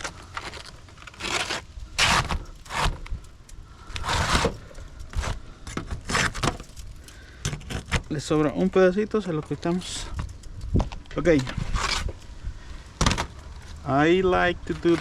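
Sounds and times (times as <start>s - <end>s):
roofing shingle scraping: 0.0s - 8.6s, 11.2s - 12.3s, 14.6s - 15.0s.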